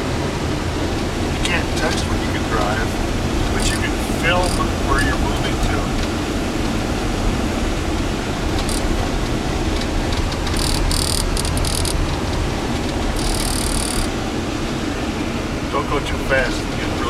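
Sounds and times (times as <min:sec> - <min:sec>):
car road and engine rumble: 0:00.0 - 0:17.0
high squeaking or scraping: 0:08.6 - 0:09.0, 0:10.5 - 0:12.0, 0:13.2 - 0:14.1.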